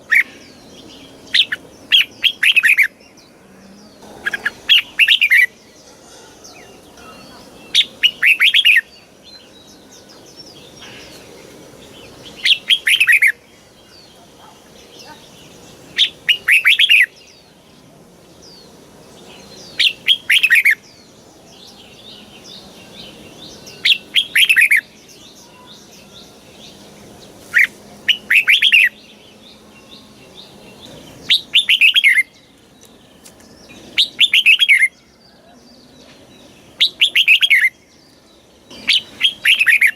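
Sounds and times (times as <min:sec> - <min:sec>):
bulbul singing whistled notes: 0:19.2 - 0:35.5, 0:36.1 - 0:39.9.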